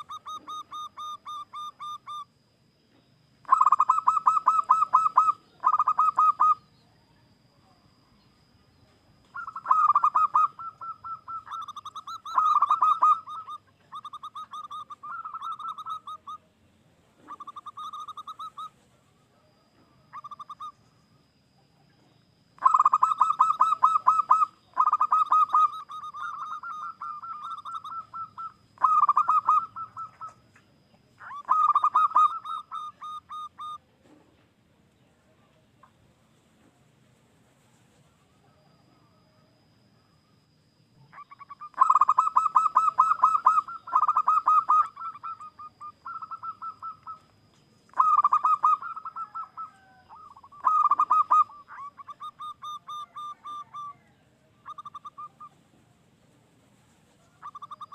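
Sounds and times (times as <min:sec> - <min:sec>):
dove cooing: 0:00.0 - 0:02.4, 0:03.4 - 0:07.8, 0:09.2 - 0:16.6, 0:17.2 - 0:20.9, 0:21.5 - 0:30.5, 0:31.2 - 0:34.4, 0:41.0 - 0:55.9, 0:56.8 - 0:57.9.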